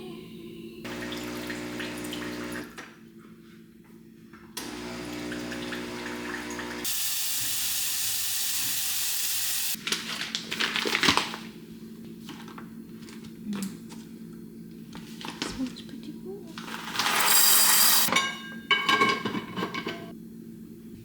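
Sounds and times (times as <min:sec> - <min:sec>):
water running: 0:00.8 - 0:02.8, 0:04.6 - 0:09.8, 0:16.6 - 0:18.1.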